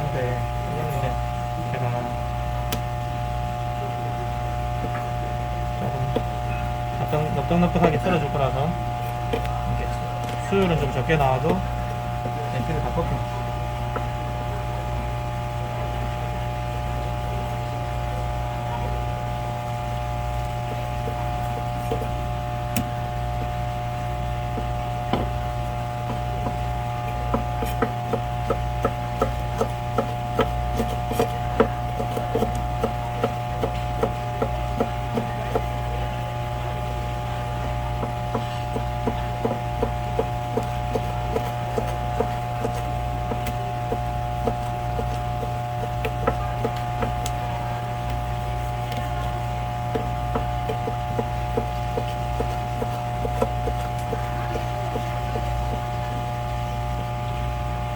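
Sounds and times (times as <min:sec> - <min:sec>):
steady machine hum: 0:00.0 - 0:57.9
knife tapping cutting board: 0:26.1 - 0:35.8, 0:38.0 - 0:47.4, 0:49.9 - 0:55.9.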